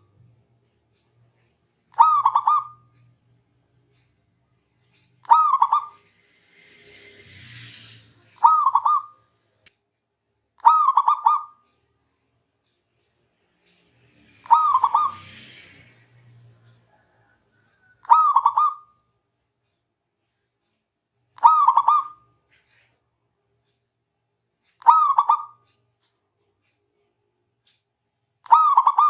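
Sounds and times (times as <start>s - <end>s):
dove cooing: 2.0s - 2.9s, 5.2s - 6.0s, 8.4s - 9.2s, 10.6s - 11.6s, 14.4s - 15.4s, 17.2s - 18.9s, 21.4s - 22.2s, 24.8s - 25.6s, 28.5s - 29.0s.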